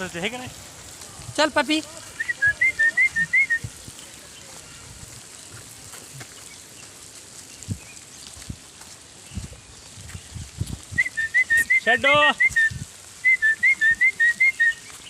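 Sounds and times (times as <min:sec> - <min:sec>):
person whistling: 0:02.2 - 0:03.6, 0:11.0 - 0:14.8.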